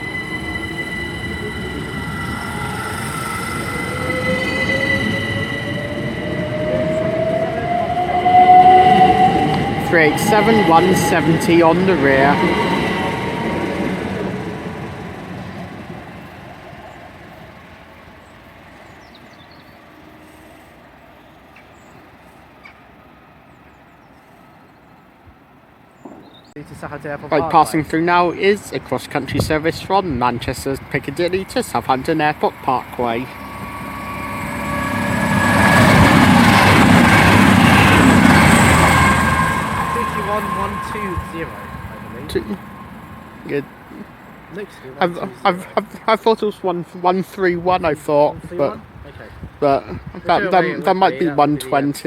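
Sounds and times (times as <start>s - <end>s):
rising whine: 0.0s - 18.3s, 31.0s - 44.6s
electric train whining: 0.0s - 52.0s
faint bird chirps: 15.4s - 25.2s.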